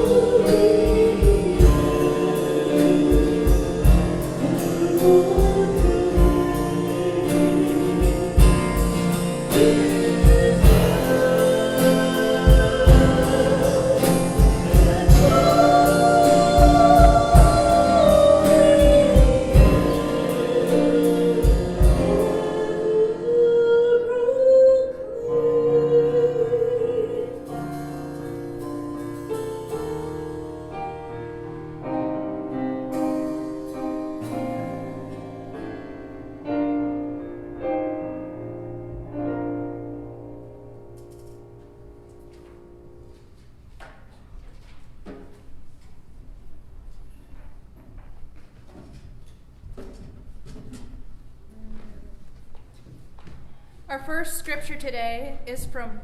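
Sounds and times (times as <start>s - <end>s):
drums: 0.0s - 22.8s
person singing: 0.0s - 28.0s
worship band music: 0.0s - 45.8s.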